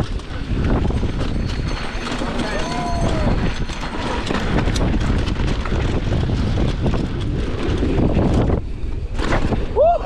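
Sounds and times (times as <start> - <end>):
bike rattling and knocking: 0.0 - 9.9
bike tyres rolling over dirt: 0.0 - 10.0
wind across microphone: 0.0 - 10.0.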